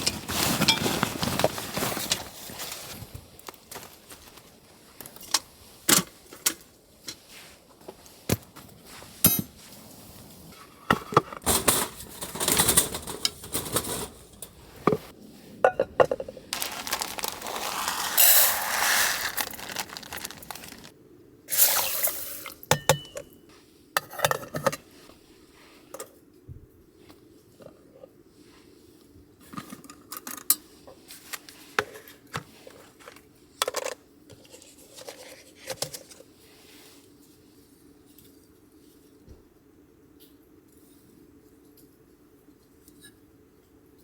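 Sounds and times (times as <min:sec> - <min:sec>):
rustling: 0:00.0 - 0:03.1, 0:16.2 - 0:20.9
camping gear clinking and knocking: 0:15.8 - 0:17.9.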